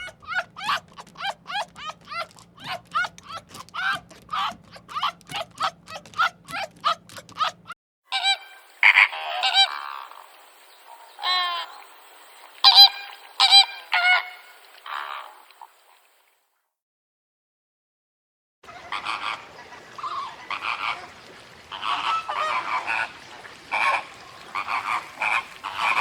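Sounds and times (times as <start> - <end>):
quick short calls: 0.0 - 7.8
bird honking calls: 0.0 - 15.5, 18.7 - 26.0.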